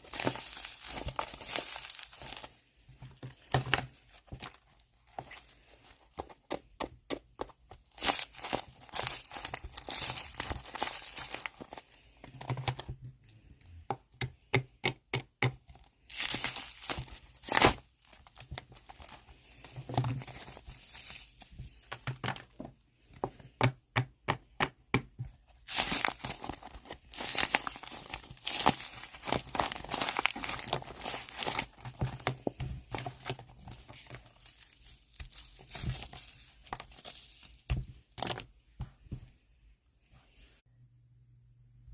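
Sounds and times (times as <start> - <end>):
tissue crinkling and tearing: 0.0 - 2.6, 7.8 - 12.8, 16.0 - 22.2, 25.6 - 38.3.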